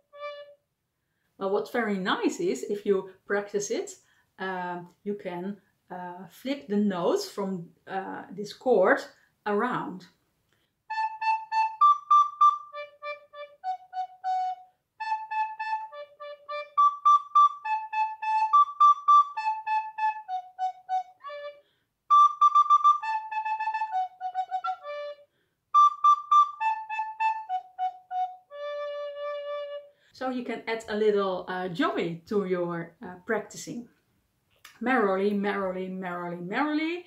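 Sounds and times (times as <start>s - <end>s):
recorder playing short notes: 10.9s - 21.5s, 22.1s - 25.2s, 25.8s - 29.6s.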